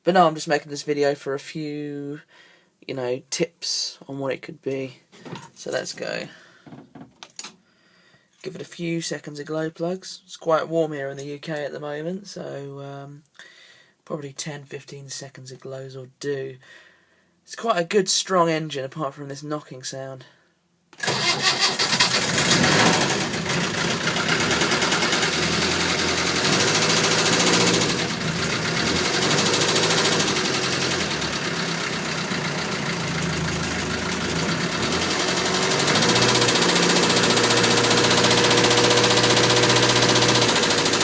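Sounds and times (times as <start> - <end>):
diesel engine cranking and running: 21.0 - 41.0
engine knocking: 22.3 - 41.0.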